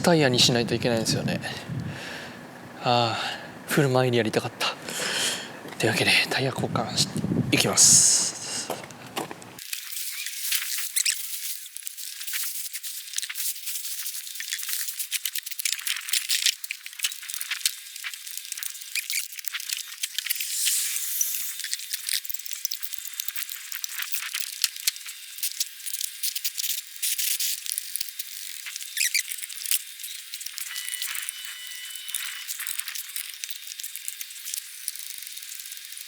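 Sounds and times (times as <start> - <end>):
hissy scraping bursts: 20.4 - 21.7.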